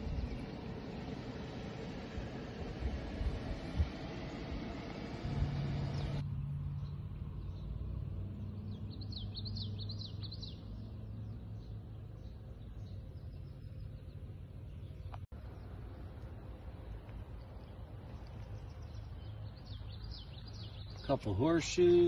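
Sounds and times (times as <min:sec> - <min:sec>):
steady low rumble: 0:00.0 - 0:21.1
bird chirping: 0:06.8 - 0:15.8, 0:17.3 - 0:22.0.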